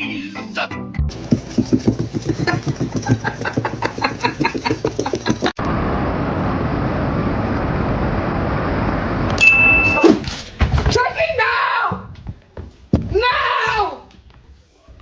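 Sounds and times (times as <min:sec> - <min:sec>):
steady rumbling noise: 0:03.8 - 0:09.4
short high beep: 0:09.4 - 0:10.2.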